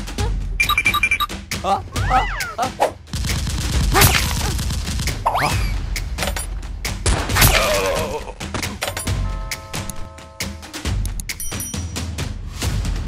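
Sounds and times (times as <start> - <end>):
background music with low beat: 0.0 - 13.0
gunfire sound effects: 3.1 - 6.4.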